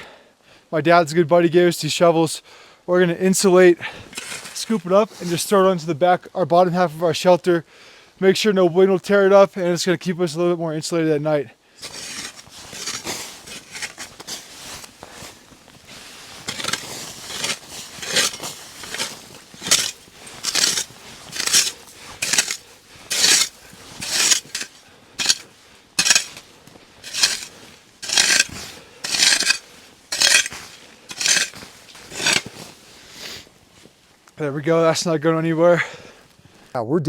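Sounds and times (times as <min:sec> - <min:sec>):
shovels scraping snow: 0:04.0 - 0:05.5, 0:11.8 - 0:33.2.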